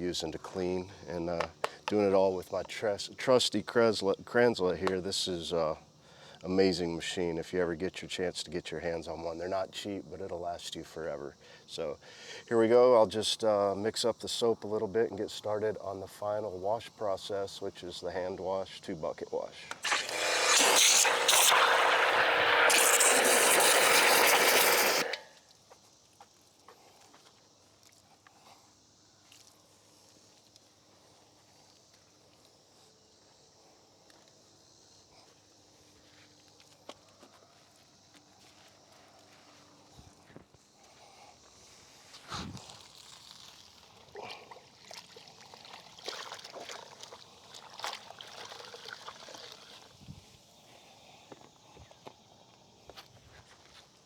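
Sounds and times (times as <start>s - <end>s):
pressure washer spraying water: 19.8s - 25.3s
water splashes: 42.9s - 49.9s
soapy water sloshing: 43.0s - 49.9s.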